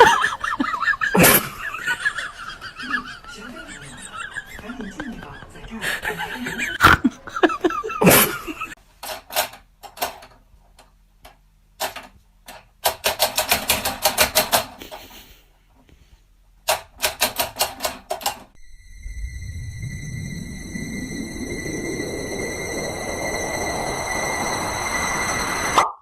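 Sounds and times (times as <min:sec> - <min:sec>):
rapid sharp clicks: 0:12.8 - 0:14.8, 0:16.7 - 0:18.6.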